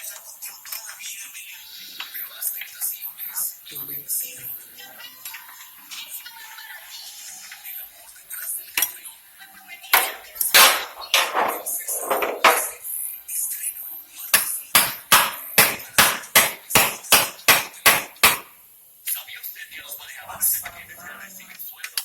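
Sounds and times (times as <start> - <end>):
hammer striking metal: 10.0 - 12.8, 14.4 - 18.5.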